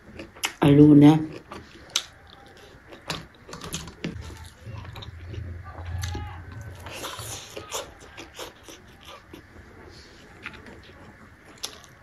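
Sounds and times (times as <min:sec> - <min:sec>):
mouth clicks and chewing smacks: 0:00.1 - 0:00.6
low rumble: 0:04.2 - 0:07.7.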